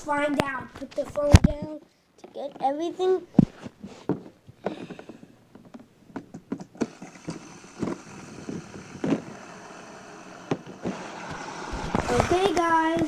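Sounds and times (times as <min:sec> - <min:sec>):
toy cars and track clicking: 0:06.8 - 0:13.0.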